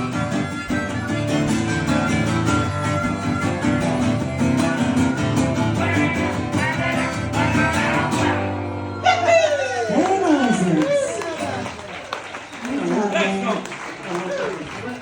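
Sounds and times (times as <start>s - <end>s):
fiddle: 0.0s - 9.4s
strummed acoustic guitars: 0.0s - 10.2s.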